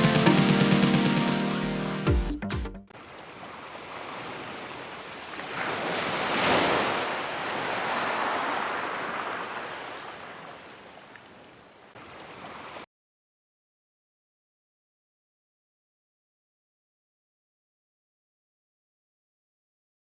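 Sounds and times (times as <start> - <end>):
surf washing ashore: 3.0 - 12.8.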